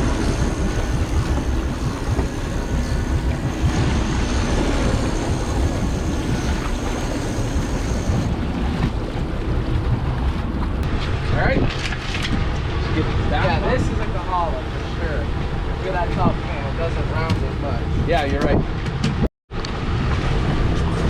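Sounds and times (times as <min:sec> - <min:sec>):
faint high whine: 0:00.0 - 0:08.3
sea wash: 0:00.0 - 0:18.2.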